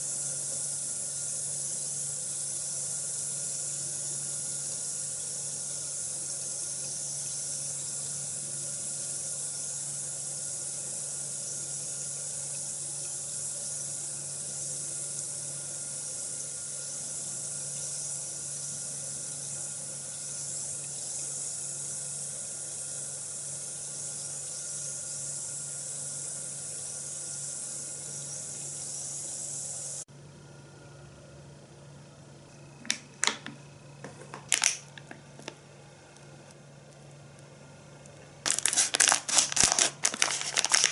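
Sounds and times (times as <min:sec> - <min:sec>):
bath bomb fizzing in water: 0:38.5 - 0:40.9.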